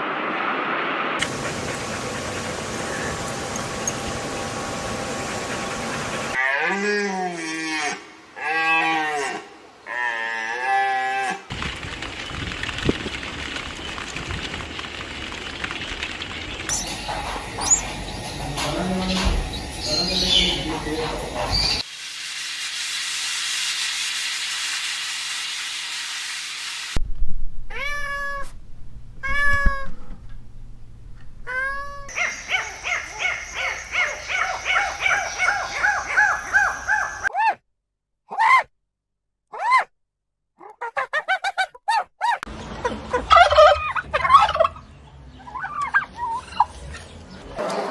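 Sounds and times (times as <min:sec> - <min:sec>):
cat meowing: 0:27.7 - 0:28.6, 0:29.2 - 0:30.0.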